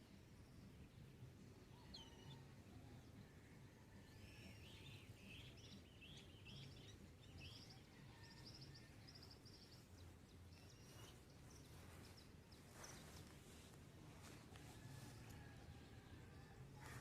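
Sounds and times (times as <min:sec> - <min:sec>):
birds chirping: 0:04.1 - 0:17.0.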